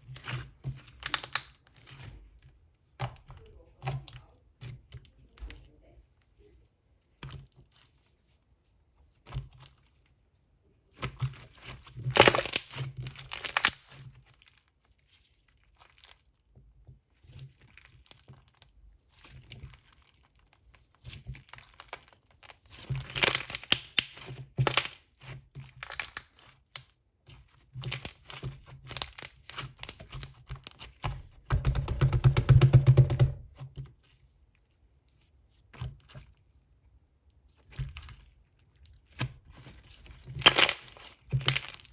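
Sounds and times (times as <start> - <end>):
crinkling and tearing: 37.8 - 41.9.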